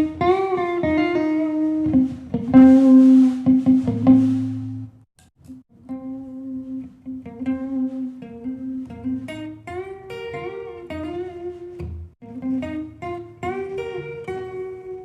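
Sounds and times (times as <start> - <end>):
guitar plucked melody: 0.0 - 15.0.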